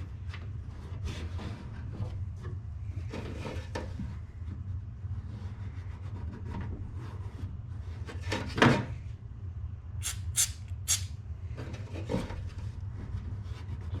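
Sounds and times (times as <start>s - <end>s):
short sharp scrapes: 10.0s - 11.2s.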